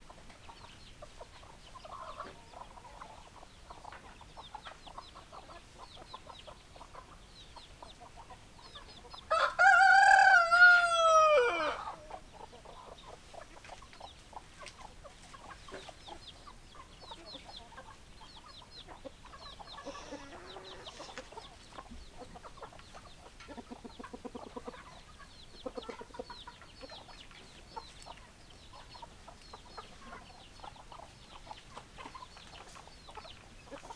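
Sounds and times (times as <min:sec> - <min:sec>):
hens clucking softly: 0:00.1 - 0:33.9
rooster crowing: 0:09.3 - 0:12.0.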